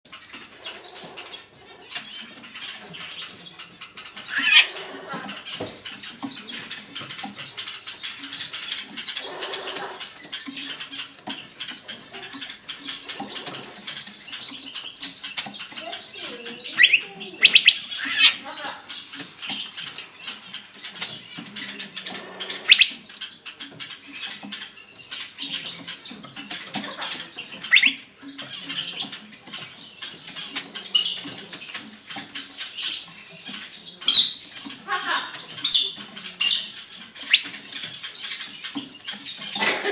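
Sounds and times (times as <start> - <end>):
cage birds chirping: 0.0 - 39.9
sharp bird calls: 0.1 - 39.9.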